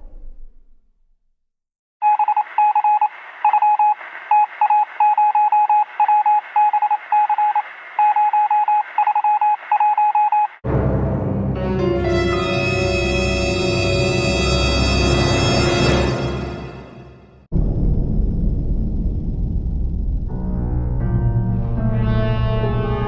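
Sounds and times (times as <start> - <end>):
electronic beeps: 2.0 - 10.6.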